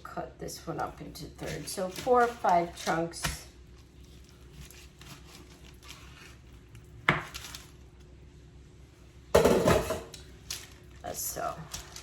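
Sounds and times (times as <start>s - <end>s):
knife scraping: 4.1s - 6.6s.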